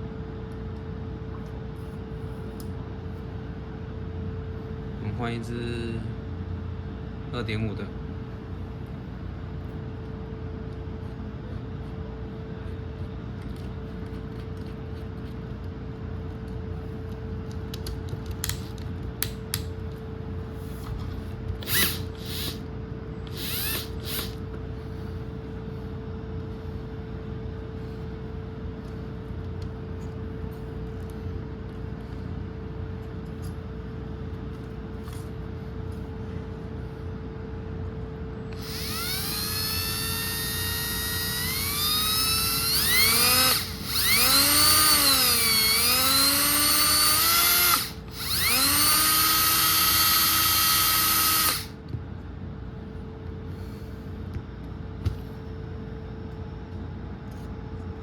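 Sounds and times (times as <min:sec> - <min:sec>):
steady hum: 0:00.0 - 0:58.0
drill chuck clicking and ratcheting: 0:21.6 - 0:22.6, 0:23.3 - 0:24.4, 0:38.6 - 0:51.7.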